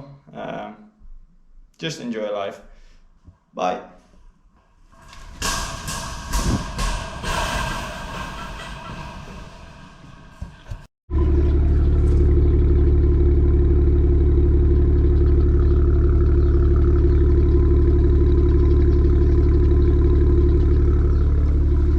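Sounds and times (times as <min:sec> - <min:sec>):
car engine idling: 0:11.1 - 0:21.9.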